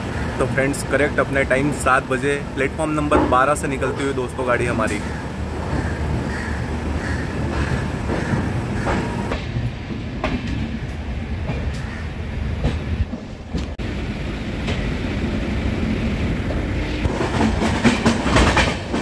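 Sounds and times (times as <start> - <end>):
train rumbling: 0.0 - 19.0
wheels clacking on track: 2.9 - 12.0, 16.5 - 19.0.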